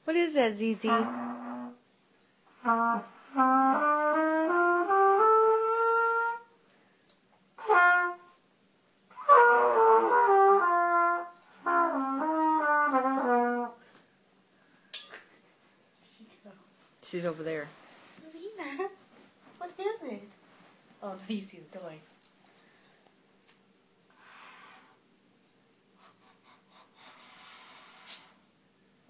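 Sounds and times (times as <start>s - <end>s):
trumpet phrases: 0.8s - 1.8s, 7.6s - 8.4s.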